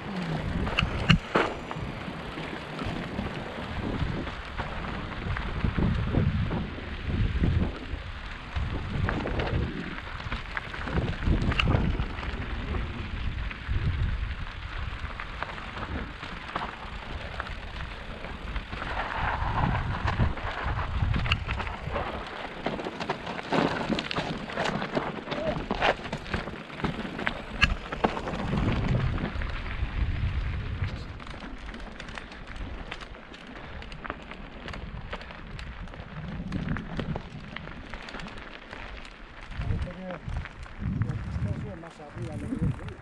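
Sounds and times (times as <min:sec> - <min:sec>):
tyres crunching on stones: 0:00.0 - 0:05.8, 0:14.9 - 0:43.0
bike rattling and knocking: 0:00.0 - 0:14.0, 0:14.9 - 0:43.0
wind buffeting microphone: 0:00.0 - 0:38.4, 0:39.3 - 0:43.0.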